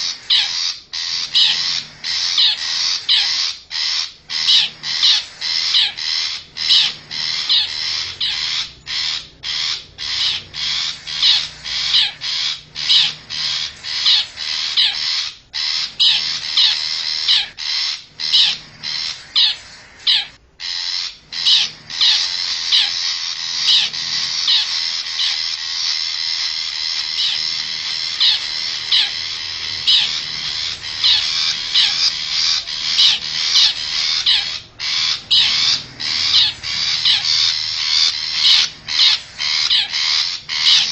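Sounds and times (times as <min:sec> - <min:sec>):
shrike harsh scolding calls: 0:00.0 - 0:40.9.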